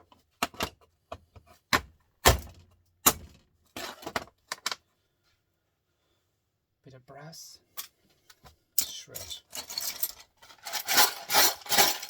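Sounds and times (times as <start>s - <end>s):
small metal parts clinking: 8.8s - 12.0s.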